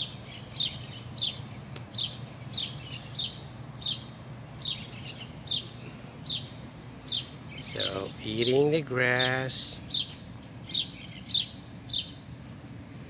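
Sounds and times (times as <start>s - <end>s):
small bird chirping: 0.0s - 12.4s
low steady background hum: 0.0s - 13.0s.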